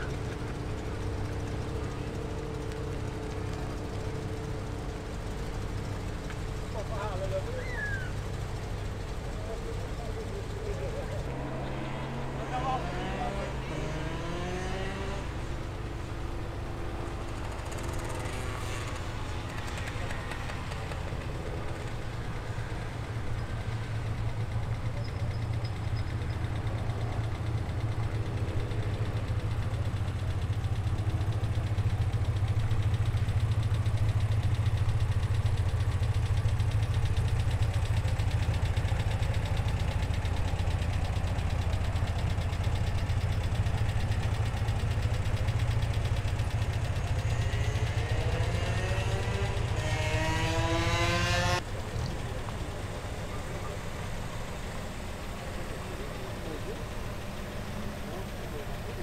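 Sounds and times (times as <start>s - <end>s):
car engine idling: 0.0s - 59.0s
engine revving up: 10.6s - 15.6s, 46.9s - 51.6s.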